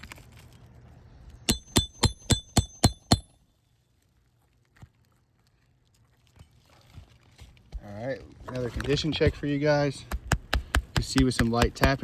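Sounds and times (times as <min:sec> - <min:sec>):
hammer striking steel tool: 0:01.5 - 0:03.3.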